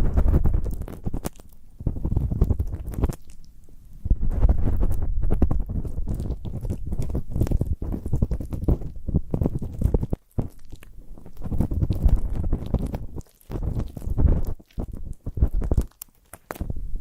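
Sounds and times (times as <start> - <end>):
ear-cleaning tool scraping microphone: 4.0 - 15.8.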